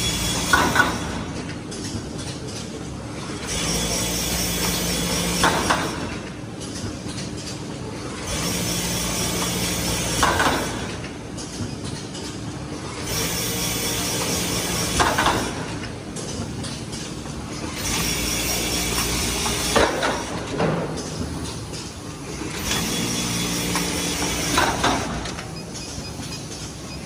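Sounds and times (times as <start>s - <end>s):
sewing machine motor running: 8.2s - 10.8s, 17.7s - 19.8s, 22.2s - 25.2s.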